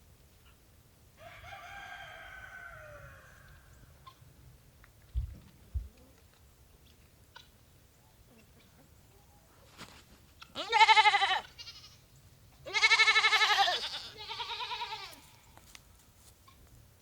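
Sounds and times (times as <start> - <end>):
goat bleating: 10.5 - 12.0, 12.6 - 15.4.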